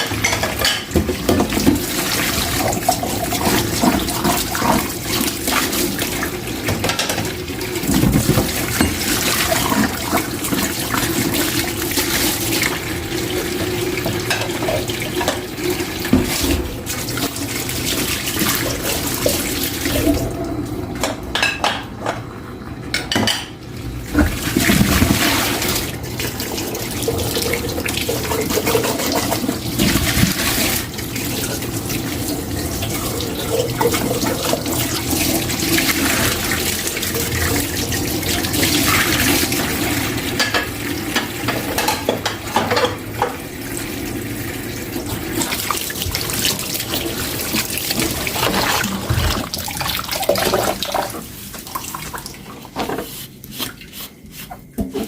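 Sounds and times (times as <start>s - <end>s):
tap running into sink: 6.6s - 9.9s.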